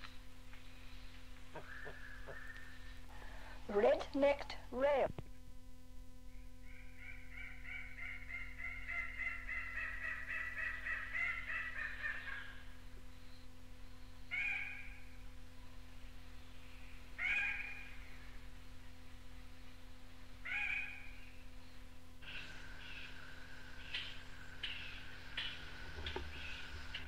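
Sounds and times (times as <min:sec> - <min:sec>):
rail bird harsh calls: 0:01.5 - 0:03.5, 0:06.3 - 0:12.8, 0:14.2 - 0:15.2, 0:16.4 - 0:19.7, 0:20.3 - 0:27.0.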